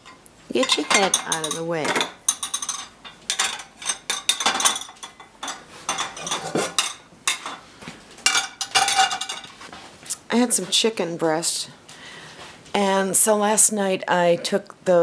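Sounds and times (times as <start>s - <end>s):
dishes and cutlery clattering: 0.0s - 7.6s, 8.2s - 9.6s.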